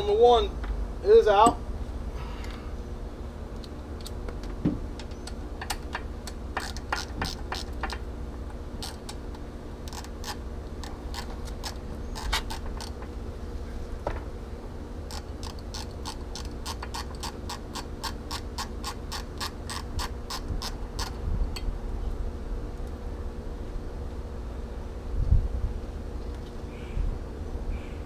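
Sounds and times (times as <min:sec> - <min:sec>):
socket ratchet clicking: 0:06.6 - 0:08.0, 0:08.8 - 0:09.2, 0:09.8 - 0:13.0, 0:15.1 - 0:21.2.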